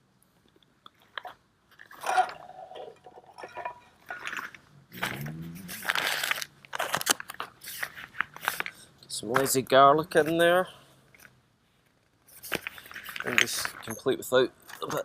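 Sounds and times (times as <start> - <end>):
containers clicking and knocking: 1.8 - 4.6
plastic wrap crinkling: 5.8 - 8.8.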